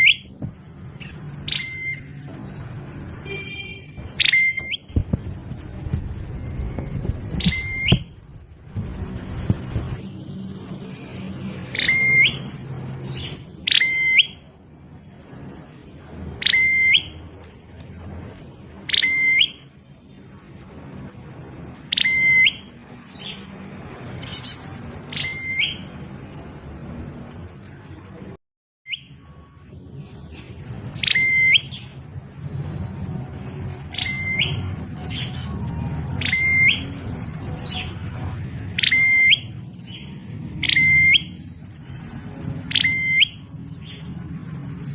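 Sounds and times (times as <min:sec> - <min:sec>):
bird whistling call: 0:03.2 - 0:04.8, 0:31.0 - 0:31.7, 0:36.2 - 0:36.9, 0:42.7 - 0:43.4.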